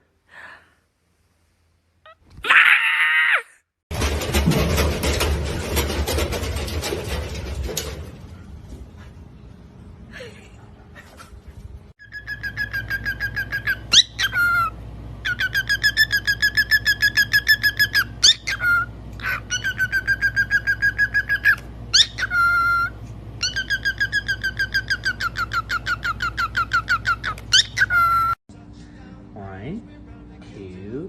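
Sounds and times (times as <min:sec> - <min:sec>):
bird chirping rapidly: 0:12.0 - 0:28.4.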